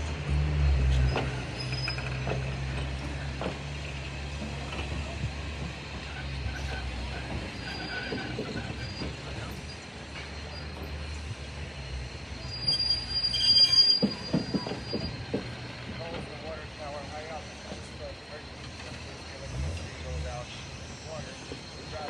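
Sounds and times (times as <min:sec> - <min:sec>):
railroad car wheels rumbling: 0:00.0 - 0:22.0
high-pitched wheel squeal: 0:01.0 - 0:02.5, 0:06.0 - 0:10.9, 0:12.3 - 0:15.6.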